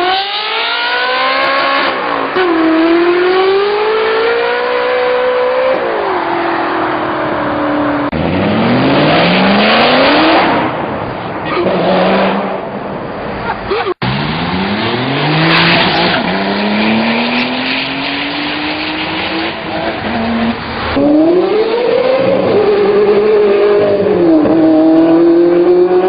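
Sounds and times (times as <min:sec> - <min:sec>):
engine revving: 0:00.0 - 0:07.0, 0:08.0 - 0:10.8, 0:14.0 - 0:26.0
car engine accelerating hard: 0:14.0 - 0:26.0.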